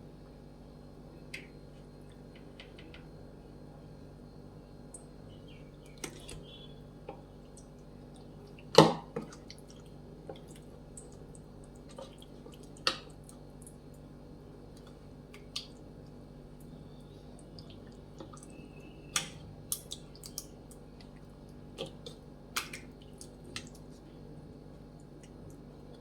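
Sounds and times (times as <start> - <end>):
hands squishing wet paste: 16.6 - 24.2.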